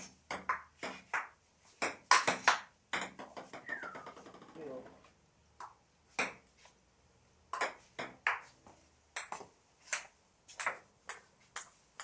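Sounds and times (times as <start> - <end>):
ball bouncing on table: 9.2 - 11.8.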